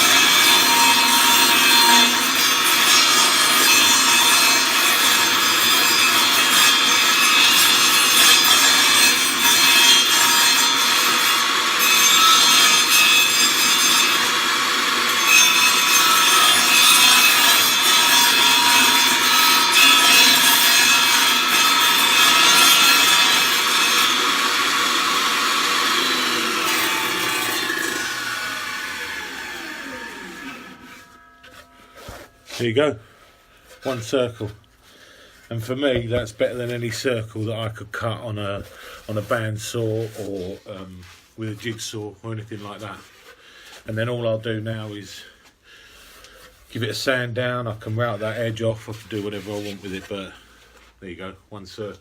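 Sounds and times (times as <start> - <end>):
table saw cutting wood: 0.0 - 32.8
saw blade spinning down whine: 22.4 - 32.0.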